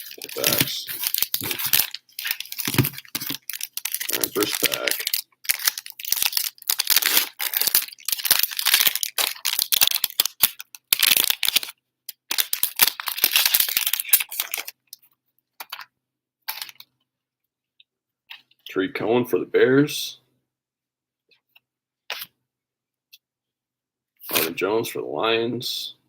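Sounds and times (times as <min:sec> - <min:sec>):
wrapper tearing and crinkling: 0:00.0 - 0:15.0, 0:16.5 - 0:16.8.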